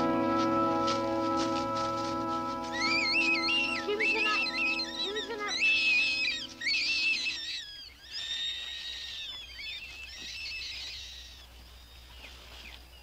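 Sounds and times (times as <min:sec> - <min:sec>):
rabbit screaming: 0:02.7 - 0:11.5.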